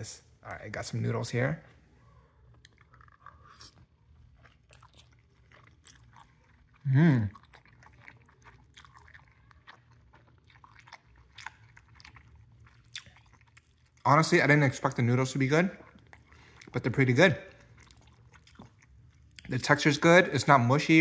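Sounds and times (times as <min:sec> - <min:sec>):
person chewing: 0:01.7 - 0:14.1, 0:15.4 - 0:19.6
person humming: 0:06.8 - 0:07.3.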